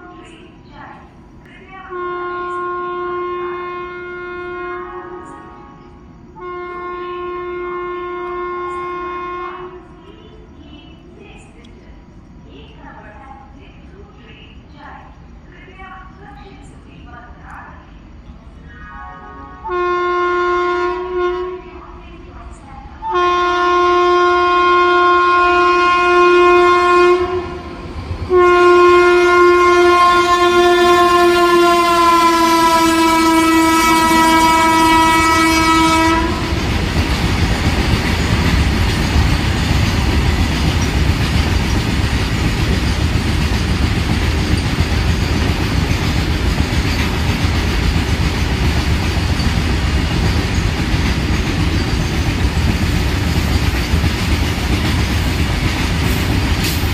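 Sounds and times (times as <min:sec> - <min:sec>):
locomotive horn blasts: 0:01.9 - 0:09.8, 0:19.0 - 0:21.6, 0:23.0 - 0:27.6, 0:28.3 - 0:36.5
freight wagons rumbling on rails: 0:29.4 - 0:56.9.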